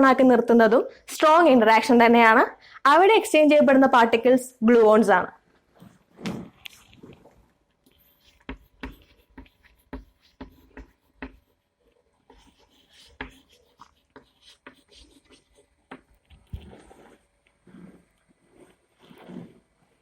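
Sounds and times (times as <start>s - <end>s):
pen writing taps and scratches: 7.9s - 17.2s.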